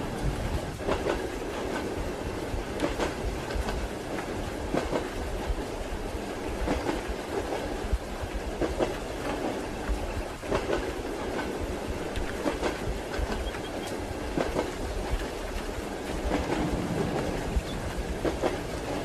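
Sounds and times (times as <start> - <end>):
train rumble and hiss: 0.0 - 19.0
train wheels clicking over rail joints: 0.1 - 2.0, 2.7 - 5.2, 8.6 - 19.0.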